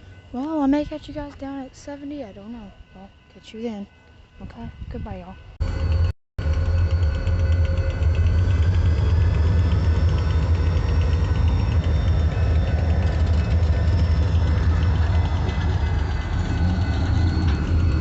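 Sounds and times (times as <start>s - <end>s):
diesel locomotive engine idling: 5.6s - 18.0s.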